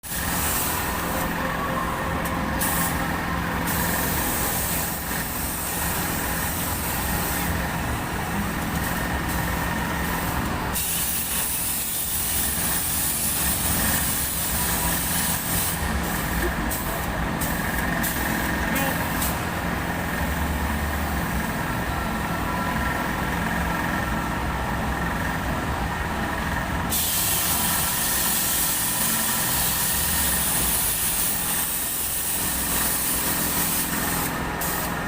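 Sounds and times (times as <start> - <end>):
hiss: 0.0 - 1.3, 2.6 - 7.6, 10.0 - 19.4, 26.9 - 35.0
kiddie ride mechanical hum: 0.0 - 35.0.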